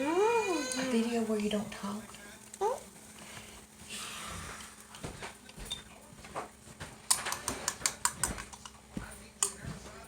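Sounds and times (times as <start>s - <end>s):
utensils and dishes clattering: 5.2s - 8.8s.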